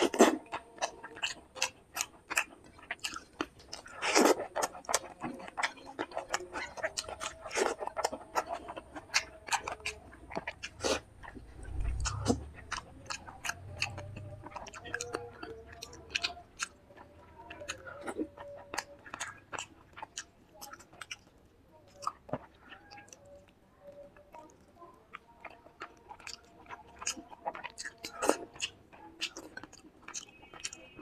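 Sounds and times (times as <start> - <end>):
wet chewing and smacking: 0.0 - 31.0.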